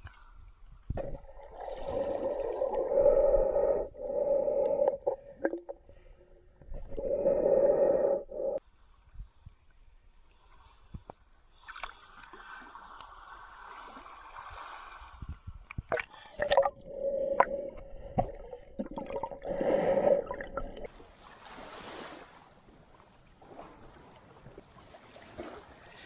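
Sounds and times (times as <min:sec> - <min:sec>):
water gurgling and splashing: 0:01.0 - 0:08.6, 0:15.8 - 0:21.9
steady hum: 0:01.9 - 0:08.6.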